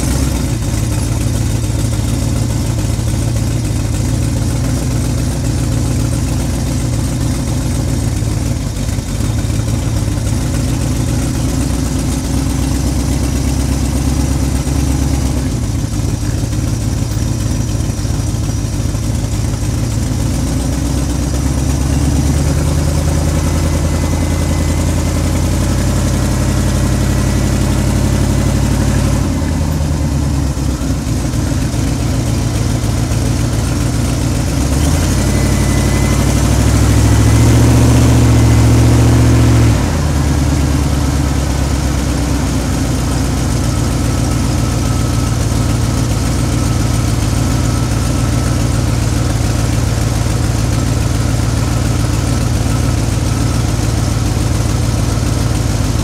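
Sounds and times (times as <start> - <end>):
car engine revving while driving: 33.8 - 43.0.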